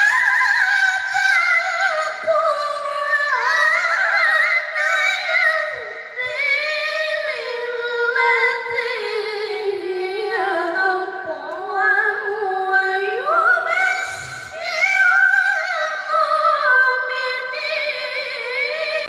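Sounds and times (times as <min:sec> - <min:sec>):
person reciting melodically: 0:00.0 - 0:19.0.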